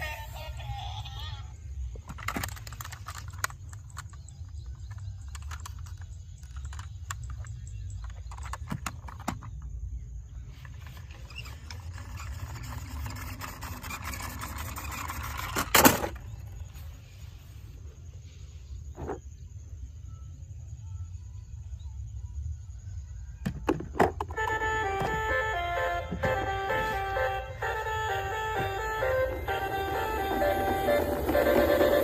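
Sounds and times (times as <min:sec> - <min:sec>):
toy cars clicking and knocking: 0:02.0 - 0:09.7, 0:10.6 - 0:16.2, 0:28.6 - 0:32.0.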